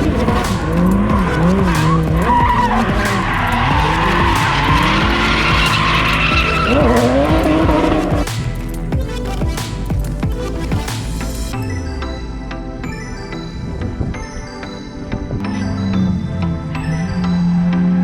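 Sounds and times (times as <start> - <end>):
car engine revving: 0.0 - 8.9
tyres squealing: 0.3 - 8.2.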